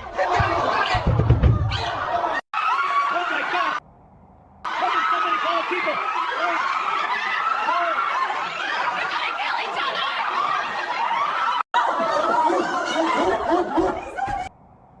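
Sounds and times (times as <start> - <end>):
people laughing and chattering: 4.7 - 14.5.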